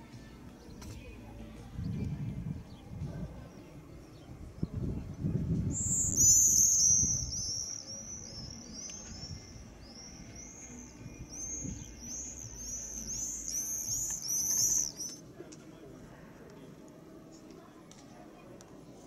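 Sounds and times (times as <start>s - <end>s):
small bird chirping: 5.7s - 15.2s.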